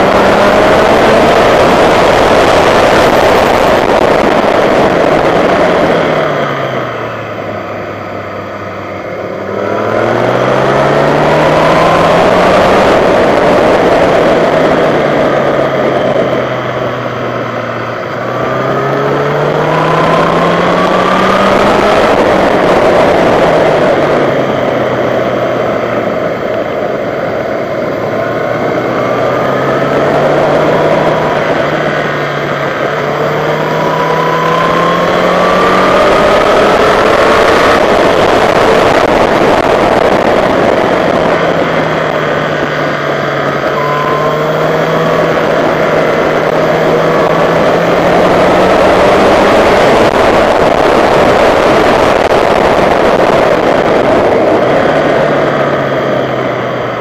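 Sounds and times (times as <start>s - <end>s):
loud wind rush: 0.0s - 57.0s
motorcycle engine revving: 0.0s - 57.0s.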